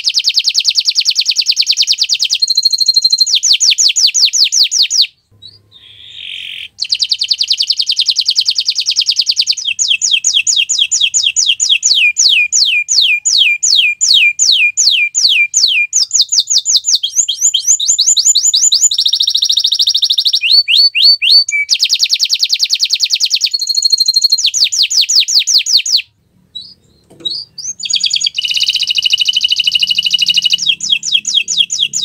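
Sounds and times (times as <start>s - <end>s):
canary singing trills: 0.0s - 32.0s.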